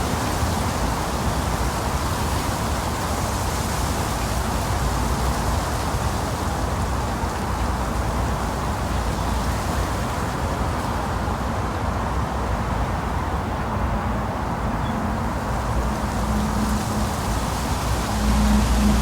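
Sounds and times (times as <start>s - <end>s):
low engine rumble: 11.4s - 19.0s.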